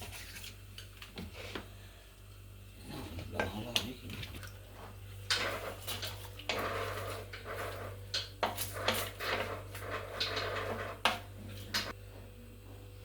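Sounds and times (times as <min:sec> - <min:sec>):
low electrical hum: 0:00.0 - 0:13.0
pots and utensils being moved: 0:05.2 - 0:12.0.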